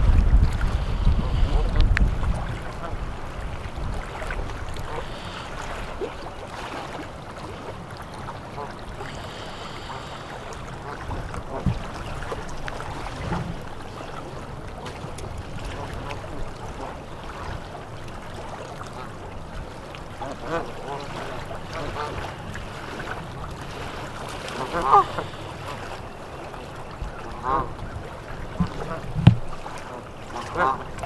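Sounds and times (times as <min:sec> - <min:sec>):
wind buffeting microphone: 0:00.0 - 0:06.5, 0:10.5 - 0:16.8, 0:26.8 - 0:30.0.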